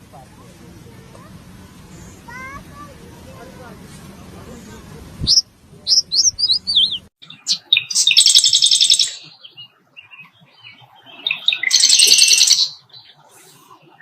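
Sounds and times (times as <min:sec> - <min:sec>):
bird trills: 0:05.3 - 0:14.0
soft bird chirps: 0:05.3 - 0:14.0.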